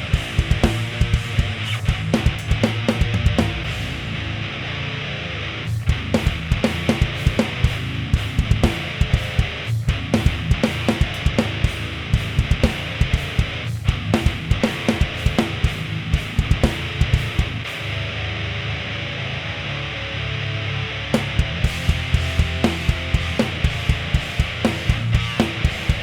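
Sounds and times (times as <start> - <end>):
fast drum beat: 0.0 - 3.9, 5.9 - 17.6, 21.2 - 26.0
distorted electric guitar: 0.0 - 26.0.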